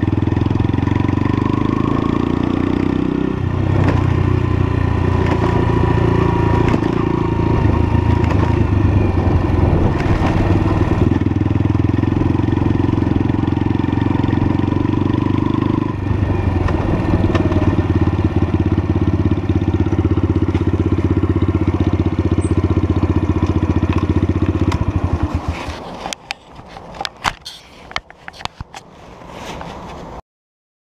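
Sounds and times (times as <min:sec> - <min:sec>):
motorcycle engine running: 0:00.0 - 0:26.2.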